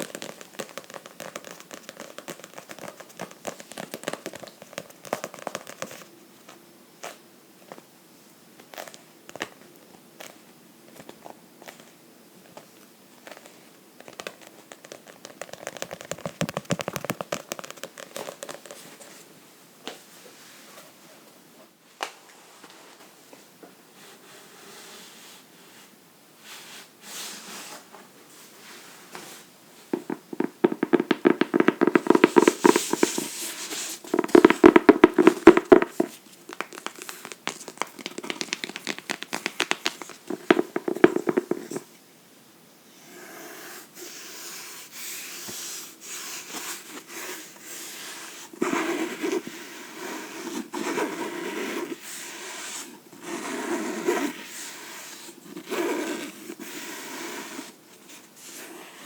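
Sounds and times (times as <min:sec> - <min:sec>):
fingers scratching and tapping on book: 0:00.0 - 0:06.1, 0:14.0 - 0:18.9, 0:30.0 - 0:41.8.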